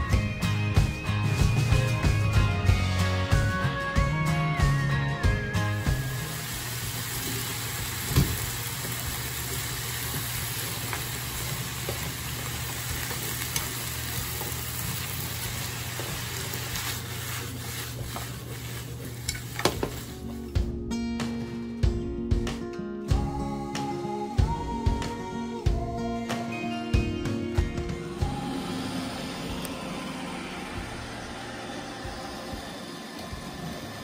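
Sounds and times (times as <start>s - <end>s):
gas burner hum: 0.0s - 20.8s, 27.5s - 34.0s
vegetables and meat sizzling in a pan: 5.6s - 20.5s.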